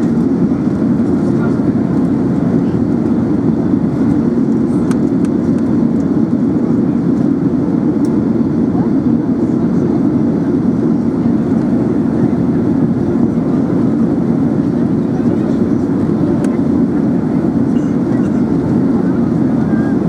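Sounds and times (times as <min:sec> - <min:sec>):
aircraft cabin engine rumble: 0:00.0 - 0:20.0.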